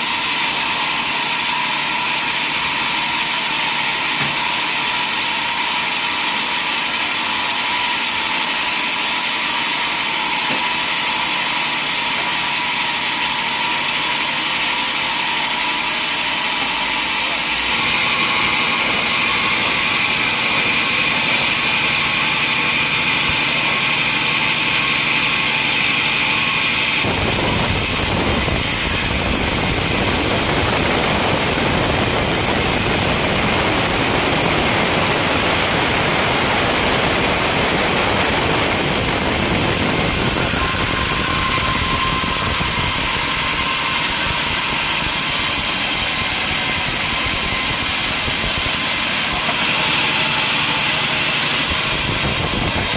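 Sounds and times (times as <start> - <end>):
sawmill machinery running: 0.0 - 52.9.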